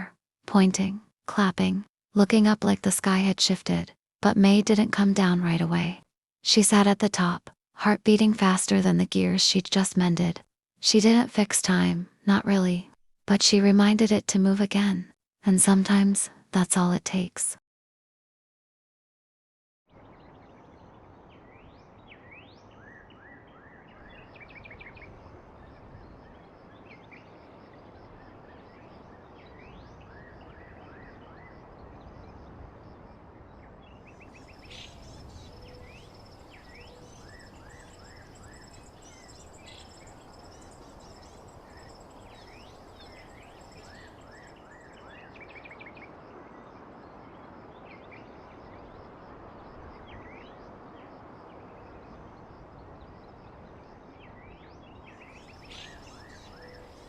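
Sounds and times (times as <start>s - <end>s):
birds chirping and singing: 34.4s - 45.6s, 55.2s - 57.0s.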